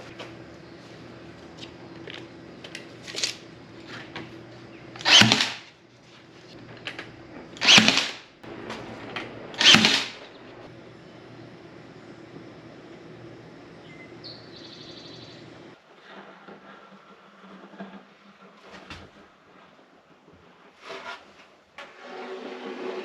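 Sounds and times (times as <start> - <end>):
low background hum: 0.0 - 20.7
power drill running: 1.8 - 5.8, 6.4 - 15.8.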